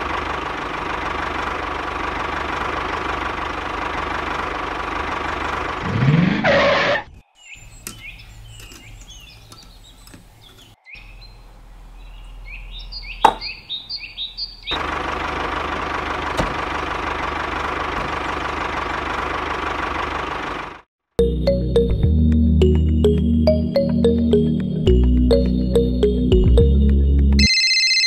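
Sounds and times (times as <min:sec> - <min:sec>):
birds chirping: 0:07.0 - 0:14.8.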